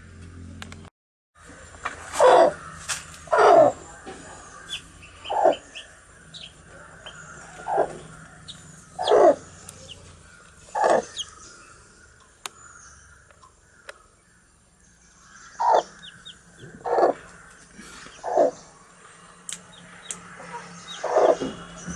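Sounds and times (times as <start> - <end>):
low falling animal calls: 1.4 - 14.5, 15.1 - 21.9
chick peeps: 3.3 - 11.4, 15.6 - 18.6, 19.5 - 21.6.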